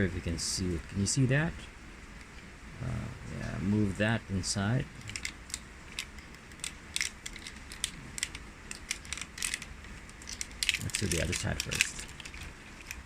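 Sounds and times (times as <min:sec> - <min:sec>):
plastic toy parts clicking: 0:05.0 - 0:13.0.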